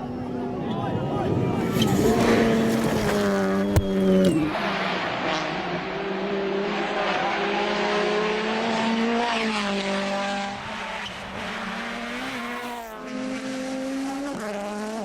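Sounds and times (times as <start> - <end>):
rally car engine revving: 0.0 - 15.0
tyre and road noise: 0.7 - 5.6.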